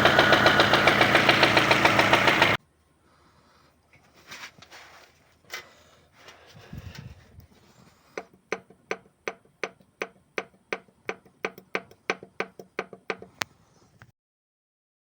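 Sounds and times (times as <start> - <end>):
engine knocking: 0.0 - 2.6
low engine rumble: 0.0 - 2.6.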